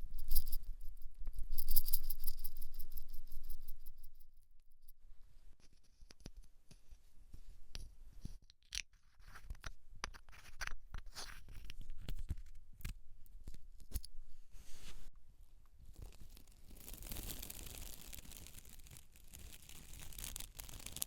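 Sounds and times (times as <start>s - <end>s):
scratching on hair and scalp: 15.9s - 21.0s.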